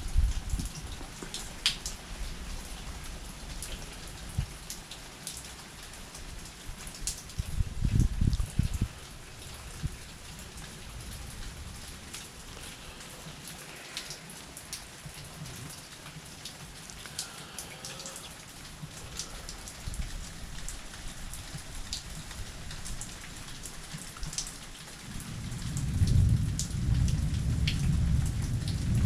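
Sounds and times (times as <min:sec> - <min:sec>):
rain falling: 0:00.0 - 0:29.0
thunder rumbling: 0:25.2 - 0:29.0.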